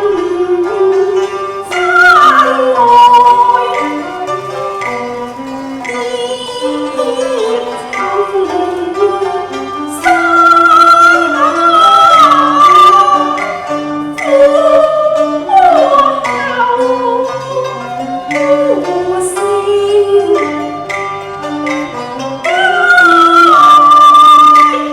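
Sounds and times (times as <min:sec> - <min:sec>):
plucked accompaniment: 0:00.0 - 0:24.9
sliding high melody: 0:00.0 - 0:24.9.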